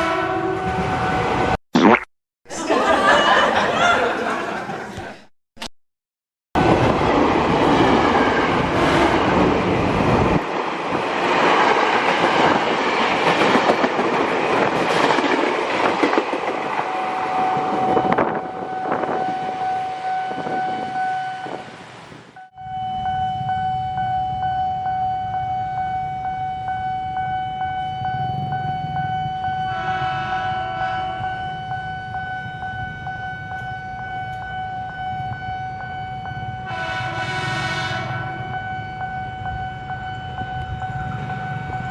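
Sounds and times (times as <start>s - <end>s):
electric train rumbling past: 6.6s - 22.3s, 23.2s - 41.9s
horn blast: 8.7s - 9.4s, 29.7s - 31.3s, 36.7s - 38.3s
rail clatter: 9.4s - 18.4s.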